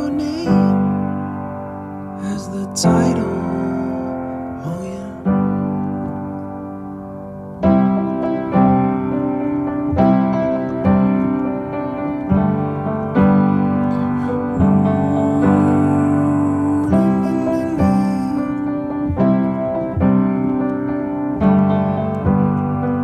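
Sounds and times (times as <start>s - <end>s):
piano playing slow chords: 0.0s - 23.0s.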